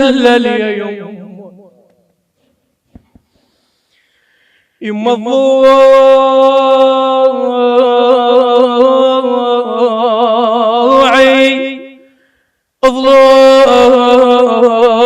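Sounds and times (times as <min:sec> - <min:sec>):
person chanting a lament: 0:00.0 - 0:01.8, 0:04.8 - 0:12.1, 0:12.8 - 0:15.0.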